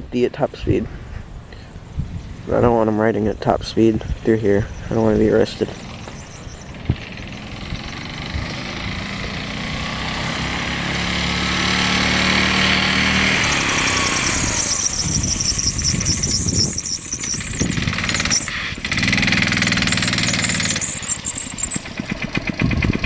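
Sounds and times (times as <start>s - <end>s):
minibike engine passing by: 4.7s - 23.0s.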